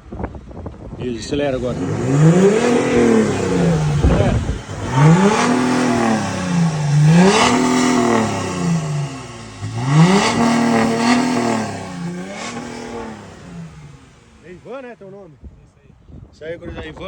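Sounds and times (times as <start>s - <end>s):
diesel engine revving: 1.0s - 14.7s.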